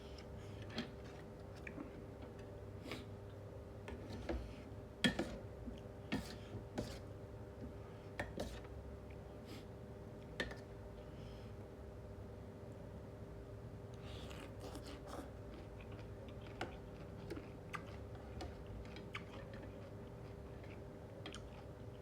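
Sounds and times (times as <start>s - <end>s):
faint steady hum: 0.0s - 22.0s
chewing smacks: 14.0s - 22.0s.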